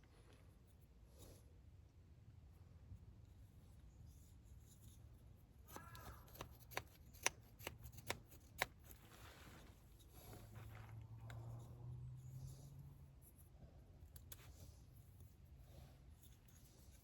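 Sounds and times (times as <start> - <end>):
light rustling: 8.6 - 11.7.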